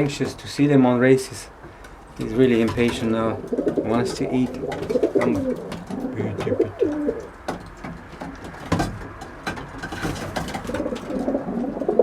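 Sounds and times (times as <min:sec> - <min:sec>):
pigeons cooing: 0:01.5 - 0:12.0
sharp clicks and taps: 0:01.8 - 0:11.2.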